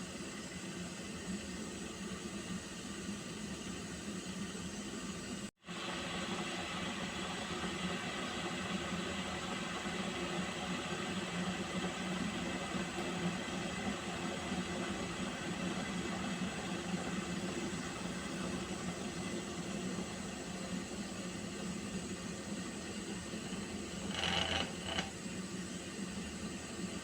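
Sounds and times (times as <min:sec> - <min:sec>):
pot of water hissing on stove: 0:00.0 - 0:27.0.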